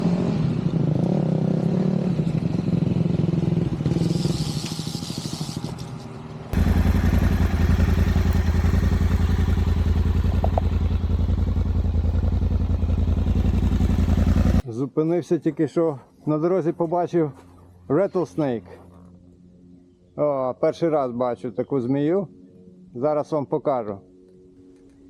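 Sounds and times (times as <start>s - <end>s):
motorcycle engine running: 0.0s - 14.6s
deep pulsing engine: 6.5s - 14.6s.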